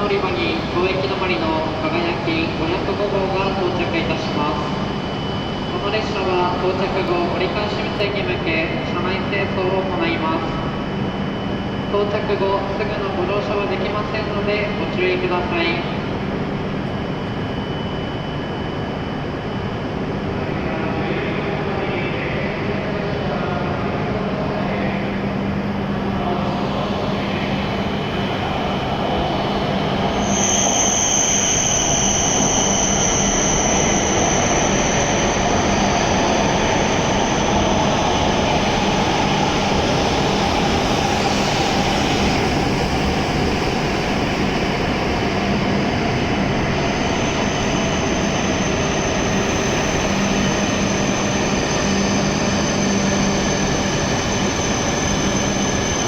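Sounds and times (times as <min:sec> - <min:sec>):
high-pitched whine: 0:24.7 - 0:56.0.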